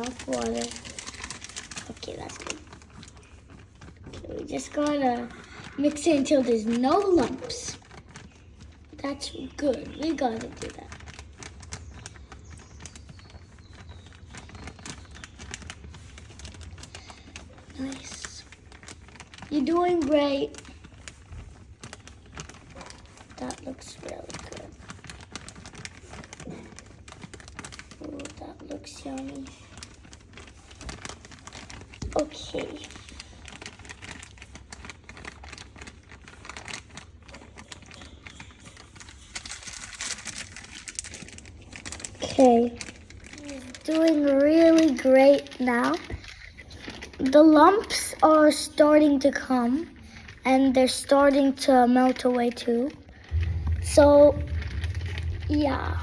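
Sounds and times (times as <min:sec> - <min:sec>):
plaster stirred in container: 0:00.0 - 0:56.0
low hum: 0:53.2 - 0:56.0.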